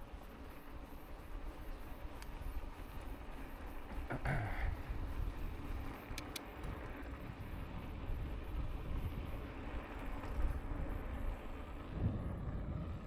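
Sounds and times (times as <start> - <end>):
wind rushing over microphone: 6.6 - 13.0.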